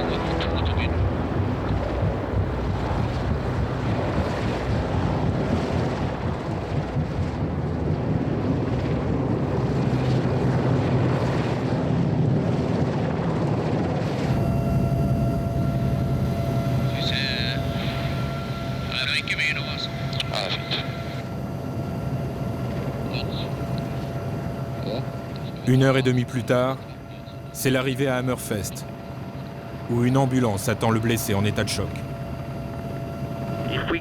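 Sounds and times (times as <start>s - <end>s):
helicopter engine and rotor: 0.0s - 34.0s
steady high tones: 14.3s - 34.0s.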